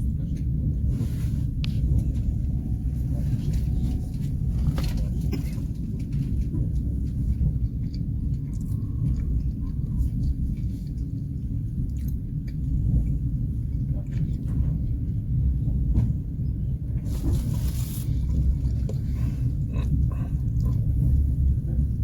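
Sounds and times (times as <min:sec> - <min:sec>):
passenger train rumble: 0:00.0 - 0:22.0.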